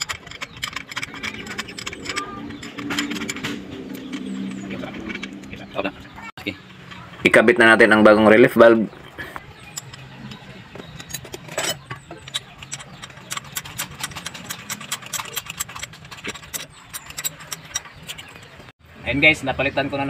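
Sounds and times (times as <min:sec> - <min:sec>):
metal hand tools clicking: 0:00.0 - 0:05.8, 0:09.3 - 0:18.7.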